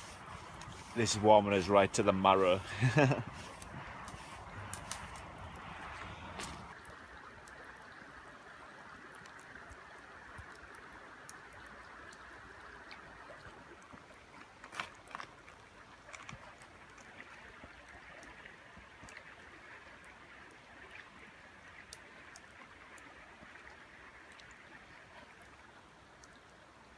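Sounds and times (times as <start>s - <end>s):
river water rushing: 0.0s - 6.8s
campfire crackles and pops: 0.0s - 7.9s.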